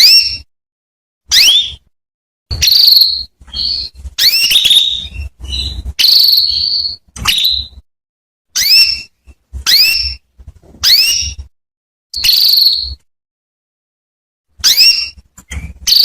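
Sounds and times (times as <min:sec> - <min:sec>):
canary chirps and trills: 0:00.0 - 0:00.5, 0:01.2 - 0:01.9, 0:02.5 - 0:07.8, 0:08.5 - 0:11.5, 0:12.2 - 0:13.1, 0:14.5 - 0:16.0.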